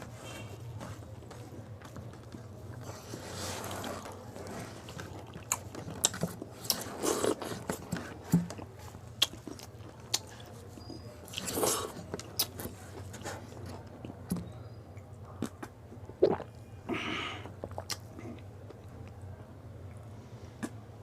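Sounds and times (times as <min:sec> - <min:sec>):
person chewing crisp food: 0:02.8 - 0:14.2, 0:17.5 - 0:19.0.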